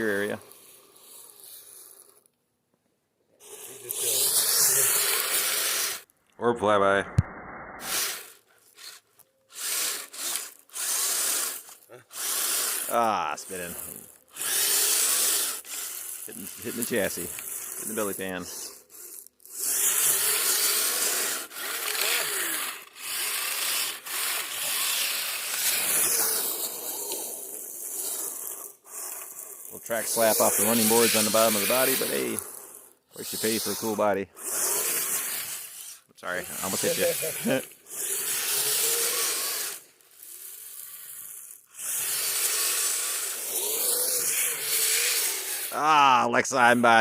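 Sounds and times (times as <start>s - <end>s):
electric motors whining: 3.4s - 6.1s, 9.5s - 46.1s
wavering motor whine: 7.0s - 8.3s
tracks hissing in snow: 24.7s - 41.3s.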